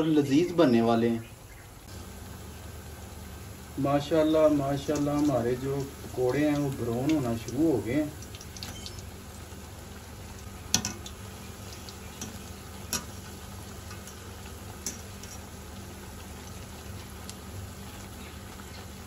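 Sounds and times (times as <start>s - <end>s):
fritters sizzling in hot oil: 0.2s - 19.0s
wire skimmer clicking on pan: 10.7s - 13.1s.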